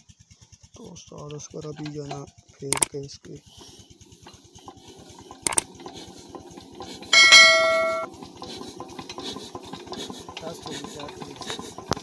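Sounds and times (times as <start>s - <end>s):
diesel engine knocking: 0.0s - 12.0s
metal struck ringing: 7.2s - 8.1s.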